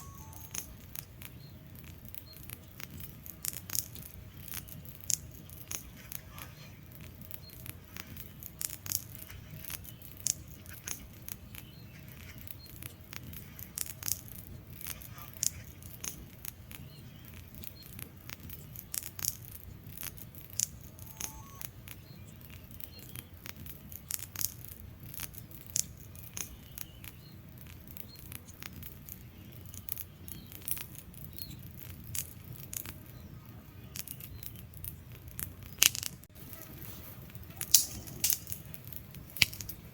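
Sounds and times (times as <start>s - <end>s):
log fire crackling and popping: 0.0s - 39.9s
low rumble of flames: 0.0s - 39.9s.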